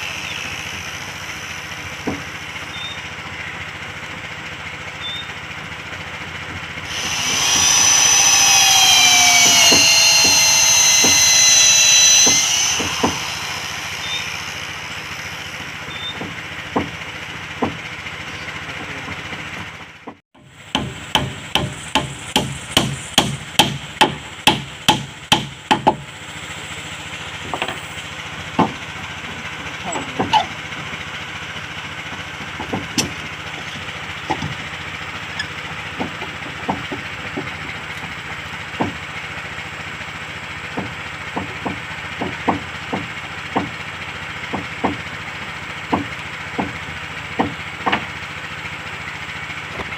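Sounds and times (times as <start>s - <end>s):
electric power tool whining: 0.0s - 5.5s, 6.2s - 19.8s
hammer striking wood: 2.0s - 2.3s, 7.0s - 14.2s, 15.6s - 17.0s, 17.6s - 17.8s, 20.0s - 26.1s, 28.6s - 28.8s, 32.1s - 33.2s, 35.9s - 37.6s, 38.8s - 39.0s, 40.7s - 43.8s, 44.5s - 45.1s, 45.9s - 48.1s.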